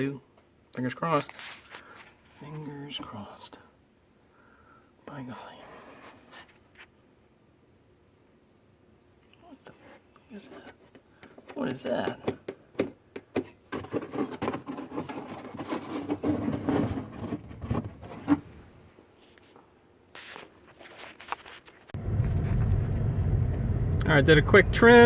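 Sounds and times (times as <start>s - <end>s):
handling clicks and knocks: 10.6s - 18.5s
car driving rumble from inside: 22.0s - 25.0s.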